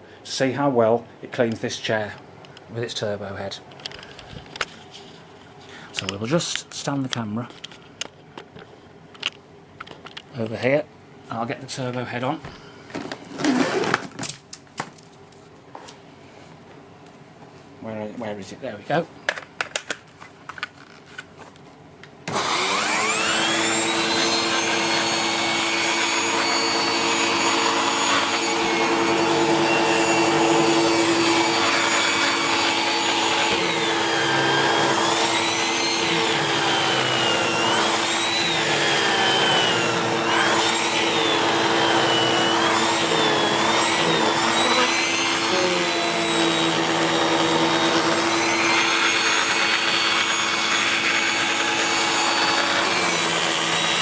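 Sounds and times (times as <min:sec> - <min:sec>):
vacuum cleaner motor whine: 0:22.3 - 0:54.0.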